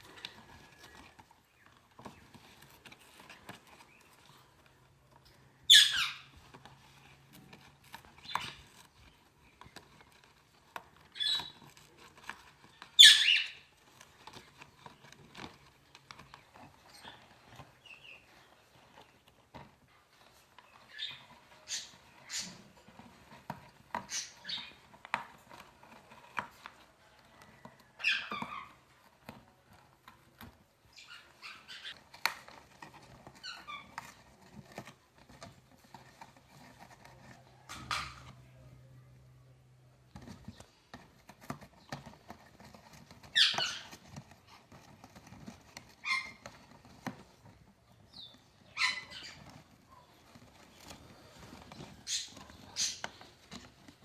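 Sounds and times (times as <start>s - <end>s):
beaks and claws scratching: 0.0s - 54.0s.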